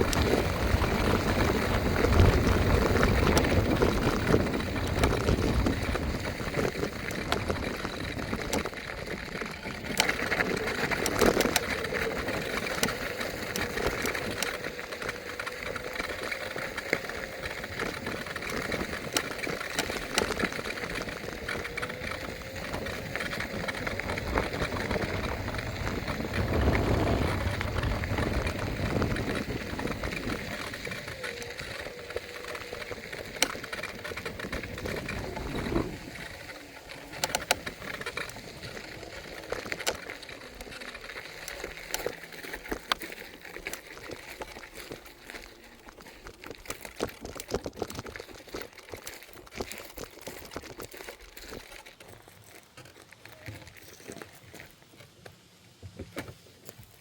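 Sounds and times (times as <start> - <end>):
wind buffeting microphone: 0.0 - 14.5, 20.5 - 39.9
electric motor whine: 0.0 - 46.0
tyre rumble on road: 0.0 - 54.9.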